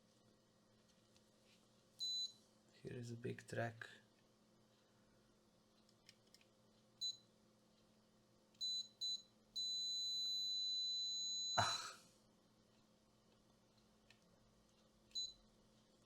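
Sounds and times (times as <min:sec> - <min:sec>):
multimeter continuity beeps: 0:02.0 - 0:02.4, 0:07.0 - 0:07.3, 0:08.6 - 0:11.6, 0:15.1 - 0:15.4.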